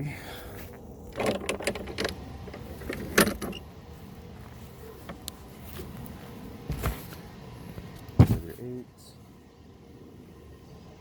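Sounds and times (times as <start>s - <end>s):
knock from handling parts: 8.2s - 8.4s.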